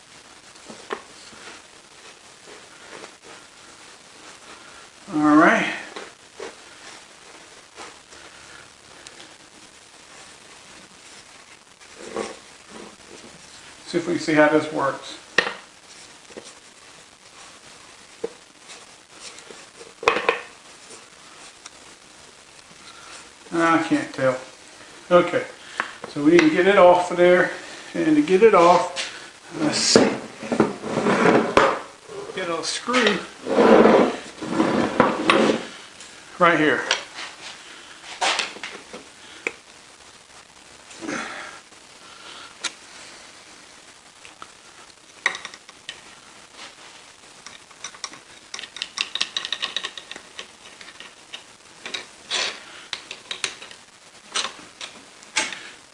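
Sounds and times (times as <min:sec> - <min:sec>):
metal parts knocking and clinking: 0:47.8 - 0:51.1.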